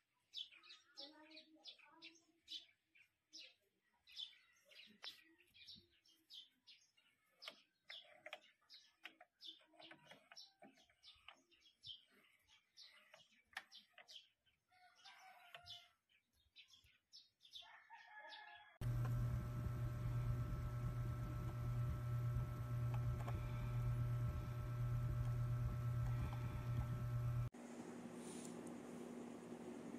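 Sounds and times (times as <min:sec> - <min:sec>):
small birds chirping: 0:00.1 - 0:17.8
loud steady hum: 0:18.8 - 0:29.9.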